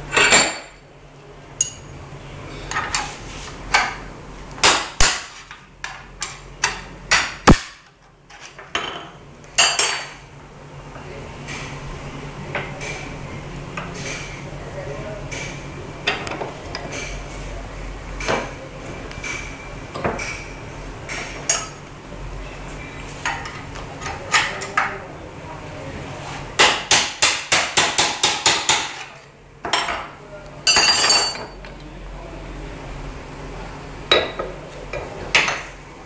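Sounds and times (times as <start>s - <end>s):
hammer strikes: 26.6s - 29.0s
metal tools clinking: 30.7s - 31.6s.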